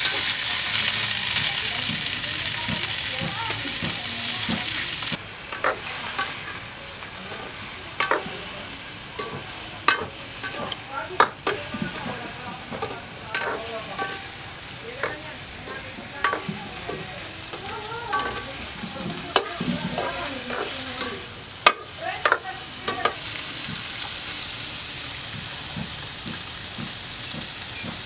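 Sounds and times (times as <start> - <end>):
food sizzling in a wok: 0.0 - 28.0
utensil knocking against wok: 1.4 - 4.8, 8.0 - 8.4, 9.2 - 14.4, 15.0 - 23.8, 25.3 - 28.0.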